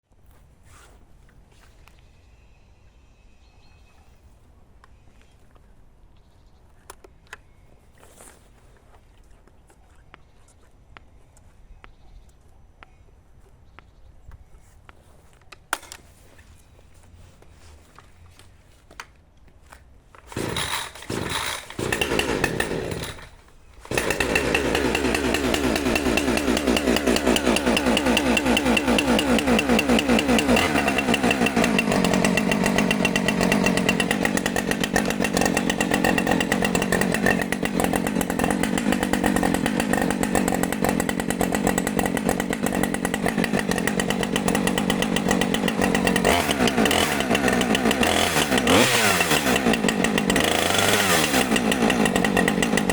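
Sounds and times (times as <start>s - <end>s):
chainsaw starting and running: 20.3s - 52.9s.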